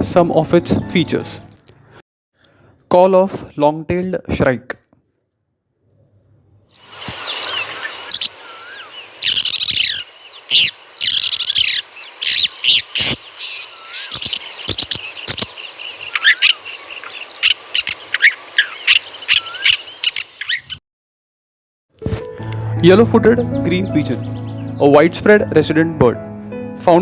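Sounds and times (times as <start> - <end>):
shrike harsh scratchy calls: 6.8 - 20.8.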